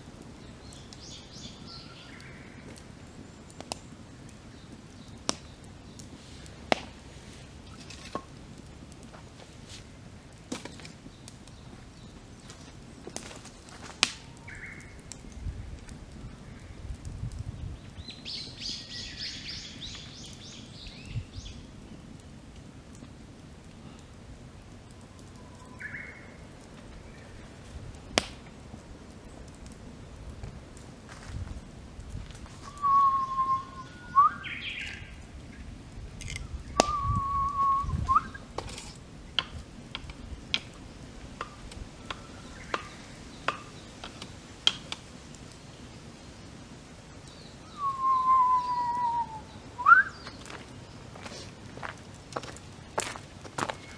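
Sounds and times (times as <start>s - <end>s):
campfire crackling: 0.0s - 53.9s
songbird singing high notes: 32.6s - 35.1s, 36.6s - 38.4s, 47.6s - 50.4s.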